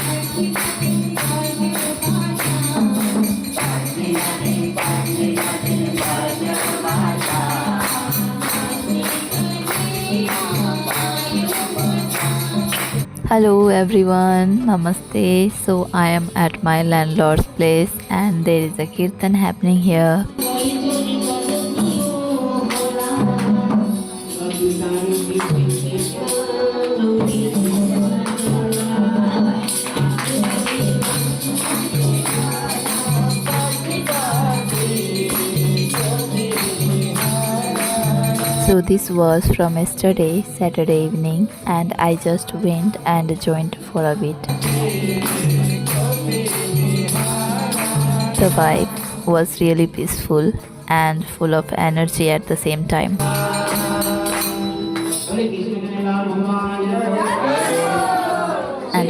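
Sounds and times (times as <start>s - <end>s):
group devotional singing: 0.0s - 13.1s, 20.3s - 40.3s, 44.4s - 49.3s, 53.2s - 59.0s
jingling hand cymbals: 0.0s - 13.1s, 20.3s - 43.8s, 44.4s - 50.5s, 53.2s - 56.0s.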